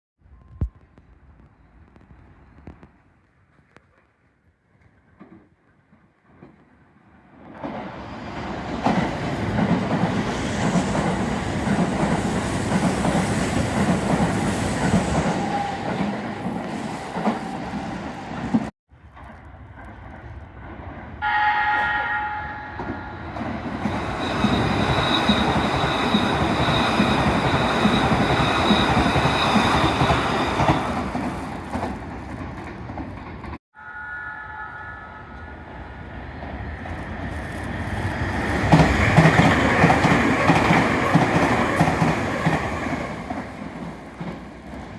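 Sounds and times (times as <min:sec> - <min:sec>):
train wheels rumbling on rails: 0:00.6 - 0:33.6, 0:35.8 - 0:44.9
train horn: 0:21.2 - 0:23.2, 0:33.8 - 0:36.0.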